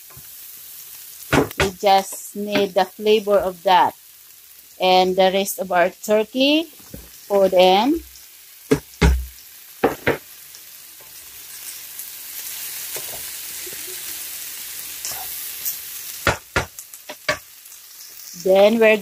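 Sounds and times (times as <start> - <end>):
meat and vegetables sizzling in pan: 0.0 - 19.0
utensil knocking against pan: 1.3 - 1.8, 8.7 - 10.2, 16.2 - 17.4.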